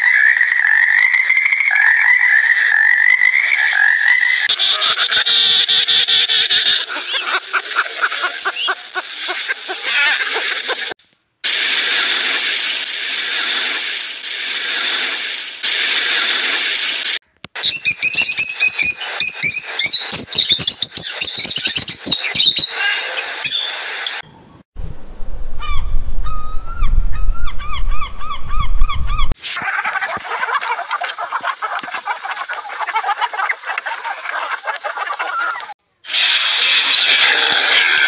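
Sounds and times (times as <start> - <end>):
gulls calling: 1.8 - 10.9, 17.6 - 24.6, 25.6 - 35.8
wind rumbling on microphone: 24.5 - 29.4.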